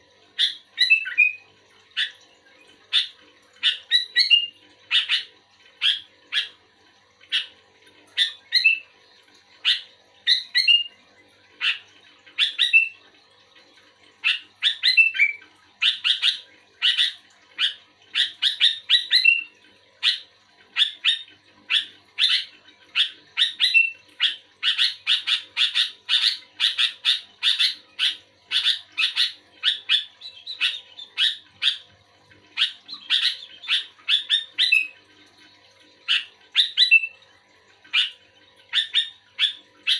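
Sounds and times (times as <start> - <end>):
bird chirping song: 0.4 - 2.2, 2.9 - 6.6, 8.1 - 8.9, 9.6 - 11.0, 11.6 - 13.0, 14.2 - 20.2, 20.8 - 31.9, 32.5 - 35.0, 36.0 - 37.2, 37.9 - 39.9.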